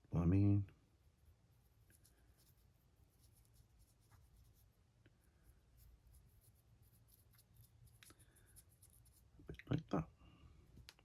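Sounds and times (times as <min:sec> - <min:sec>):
paintbrush scratching: 0:00.8 - 0:09.4.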